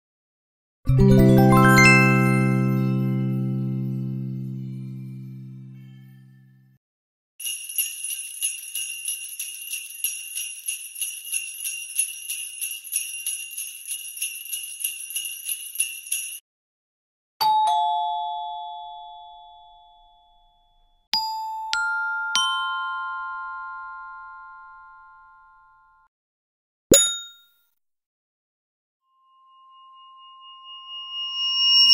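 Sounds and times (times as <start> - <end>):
bells struck at different pitches: 1.2 - 4.0, 7.4 - 16.4, 21.2 - 24.2, 26.9 - 27.5
sleigh bells jingling: 7.4 - 16.4.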